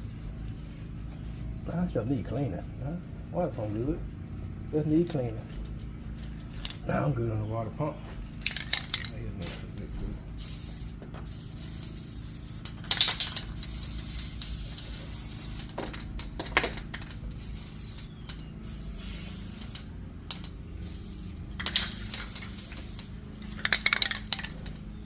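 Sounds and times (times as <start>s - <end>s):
aerosol can spraying: 10.4s - 12.8s, 13.5s - 15.9s, 17.3s - 24.4s.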